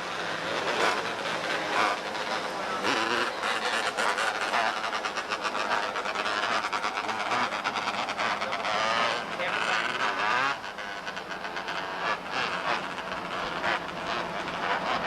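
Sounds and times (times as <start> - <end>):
race car engines buzzing: 0.0 - 15.0.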